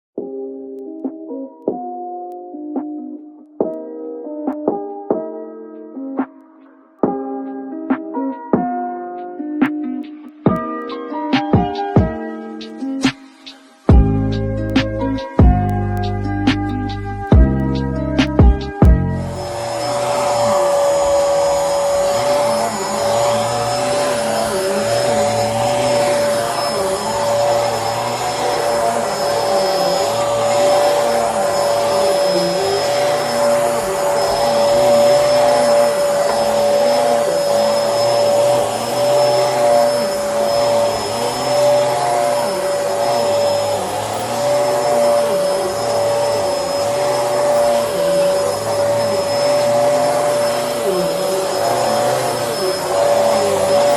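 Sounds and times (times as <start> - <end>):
vacuum cleaner running: 11.4 - 53.9.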